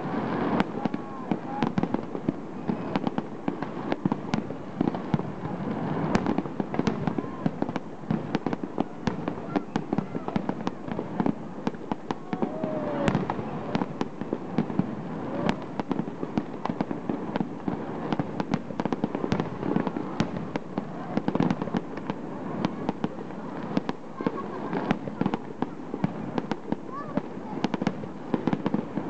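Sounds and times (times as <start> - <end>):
fireworks bangs and crackling pops: 0.0 - 29.0
firework whistle: 8.8 - 15.8.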